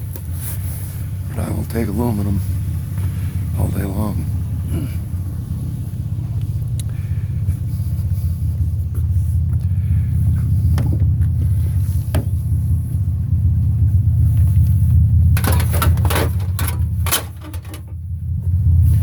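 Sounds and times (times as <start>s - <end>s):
vehicle engine running: 0.0s - 19.0s
light clicks and knocks: 15.4s - 18.0s.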